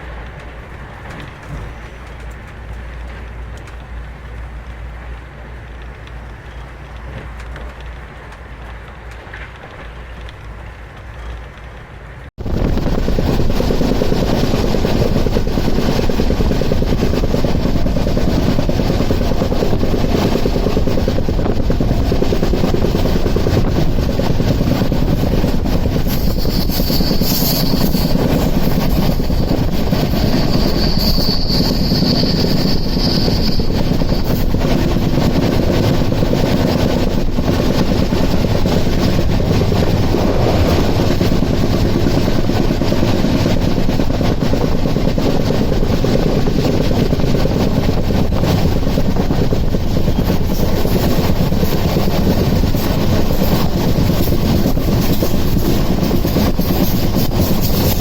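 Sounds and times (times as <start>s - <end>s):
train wheels rumbling on track: 0.0s - 58.0s
high squeal: 26.0s - 35.2s.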